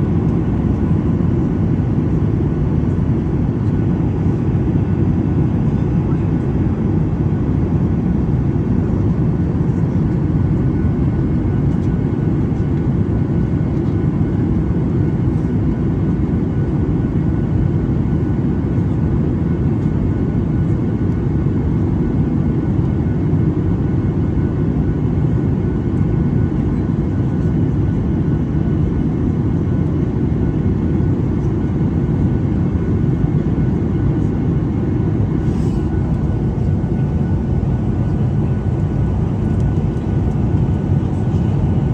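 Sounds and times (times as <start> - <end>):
jet engine cabin rumble: 0.0 - 41.9
faint steady whine: 32.9 - 41.9.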